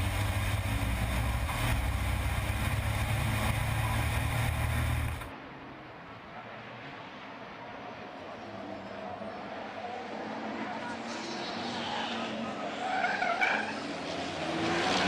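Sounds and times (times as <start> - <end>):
diesel truck engines roaring: 0.0 - 15.0.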